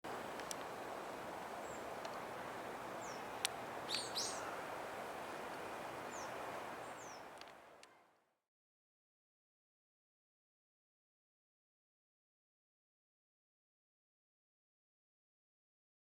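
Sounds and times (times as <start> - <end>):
outdoor background hiss: 0.0 - 8.4
birds giving high calls: 1.6 - 7.3.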